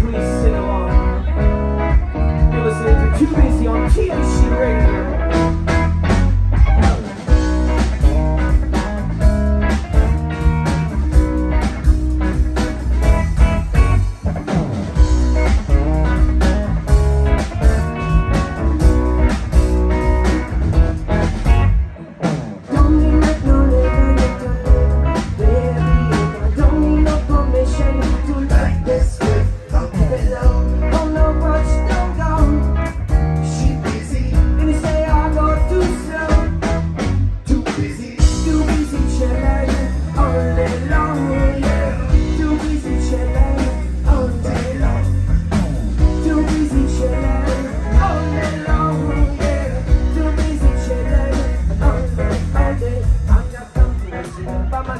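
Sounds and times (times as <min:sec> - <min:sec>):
person singing: 0:00.0 - 0:05.4, 0:21.8 - 0:36.7, 0:37.4 - 0:54.9
live rock band playing: 0:00.0 - 0:54.9.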